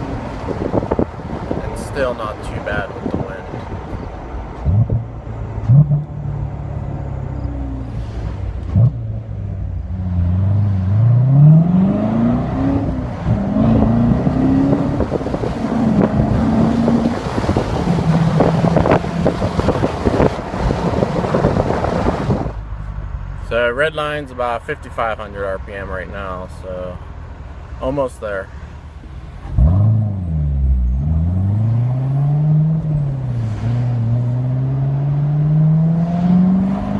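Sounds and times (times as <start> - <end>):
wind noise: 0.0 - 6.2, 11.5 - 22.7
car engine accelerating: 3.1 - 23.8, 29.3 - 36.9.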